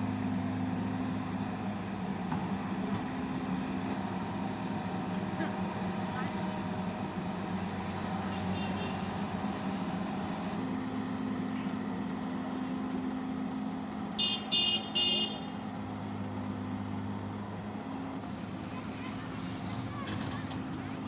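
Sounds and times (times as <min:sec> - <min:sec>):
excavator diesel engine running: 0:00.0 - 0:21.0
horn tooting: 0:14.2 - 0:15.6.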